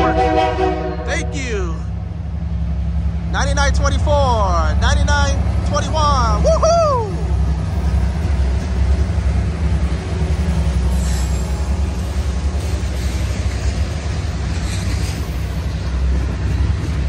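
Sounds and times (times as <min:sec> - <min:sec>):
diesel locomotive engines rumbling: 0:00.0 - 0:17.0
train wheels clattering on rails: 0:07.5 - 0:17.0.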